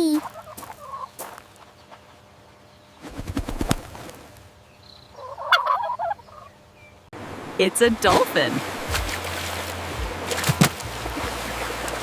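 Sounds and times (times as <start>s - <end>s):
turkey gobbling: 0.2s - 1.1s, 5.2s - 6.5s.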